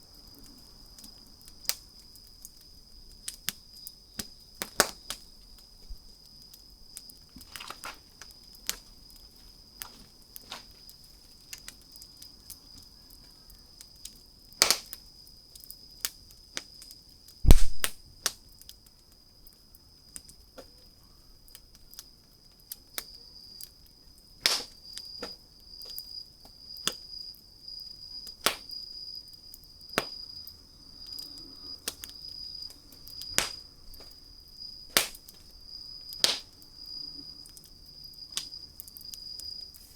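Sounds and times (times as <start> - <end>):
insect trill: 0.0 - 39.9
wood fire crackling: 0.0 - 39.9
low thump: 17.5 - 17.9.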